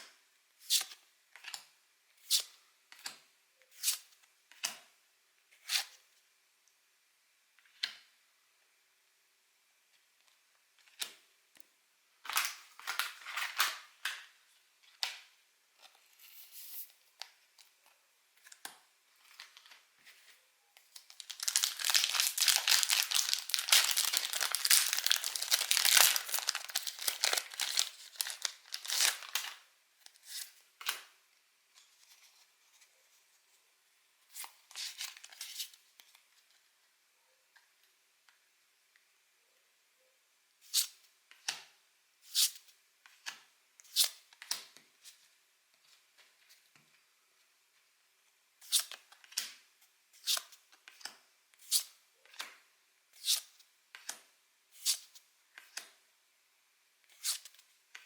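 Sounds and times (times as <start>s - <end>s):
wrappers tearing and crinkling: 21.0s - 29.6s.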